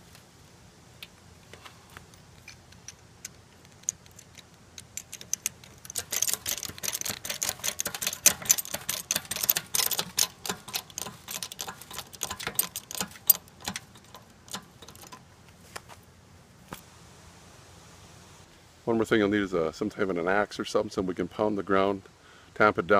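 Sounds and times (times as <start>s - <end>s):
rapid clicking and crackling: 2.7s - 15.2s.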